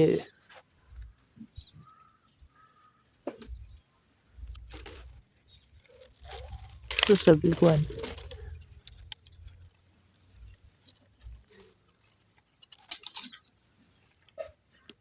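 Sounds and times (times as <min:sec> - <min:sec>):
faint rustles: 0:03.4 - 0:14.5.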